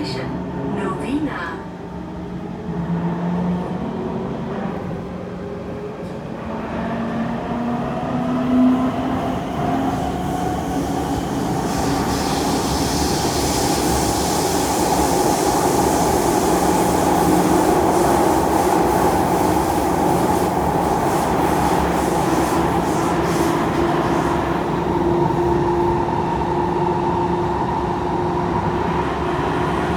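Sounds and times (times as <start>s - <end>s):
train wheel and tunnel noise: 0.0s - 29.9s.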